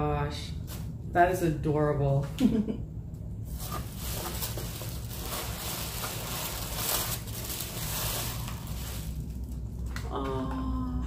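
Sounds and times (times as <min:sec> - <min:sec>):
packaging rustling and crinkling: 0:03.5 - 0:09.8.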